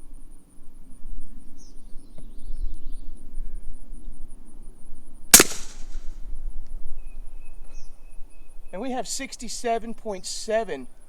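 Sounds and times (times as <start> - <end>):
suppressed pistol shot: 5.4 - 6.0.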